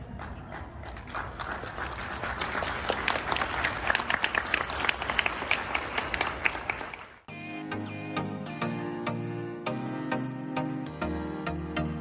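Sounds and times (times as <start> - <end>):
people clapping: 0.0 - 7.3.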